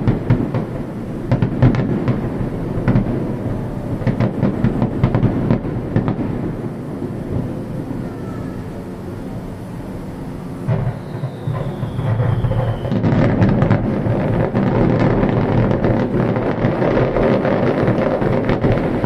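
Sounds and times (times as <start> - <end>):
fireworks bangs and crackles: 0.0 - 8.0, 10.6 - 19.0.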